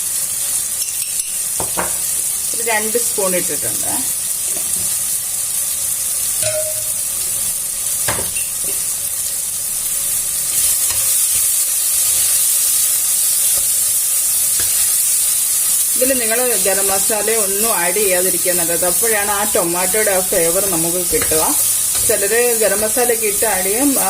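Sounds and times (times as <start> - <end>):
food sizzling in a pan: 0.0 - 24.0
spoon knocking and scraping pan: 0.8 - 2.1, 6.4 - 7.2, 14.5 - 15.0, 20.0 - 24.0.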